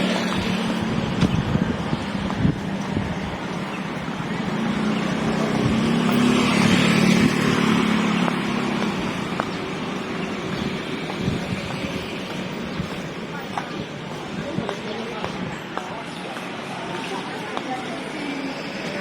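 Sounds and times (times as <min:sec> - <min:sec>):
motor engine passing: 0:04.2 - 0:11.5.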